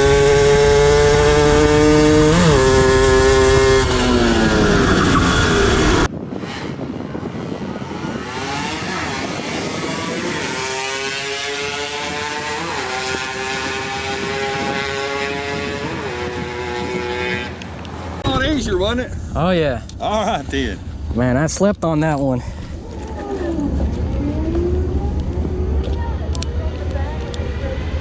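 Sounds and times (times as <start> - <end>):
high-pitched engine running: 0.0 - 6.1
loud engine: 0.0 - 6.7, 23.2 - 26.0.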